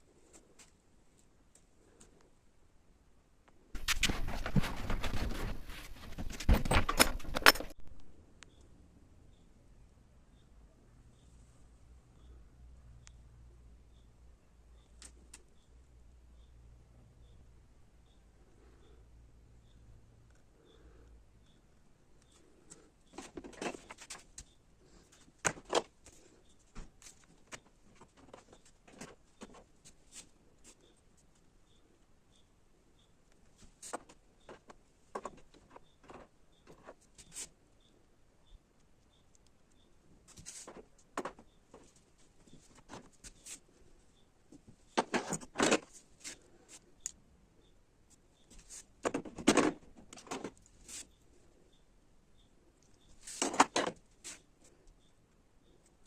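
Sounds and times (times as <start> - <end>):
handling clicks knocks and rustles: 3.8 - 8.1, 22.2 - 30.8, 33.3 - 37.5, 40.3 - 43.6, 44.5 - 47.2, 48.4 - 51.1, 52.8 - 54.4
objects clicking and knocking: 3.8 - 8.1.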